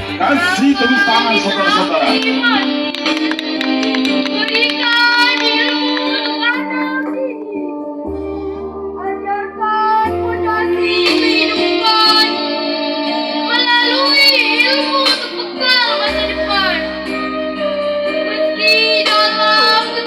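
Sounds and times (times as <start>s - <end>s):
girls' choir singing: 0.0s - 6.6s
instrumental backing: 0.0s - 20.0s.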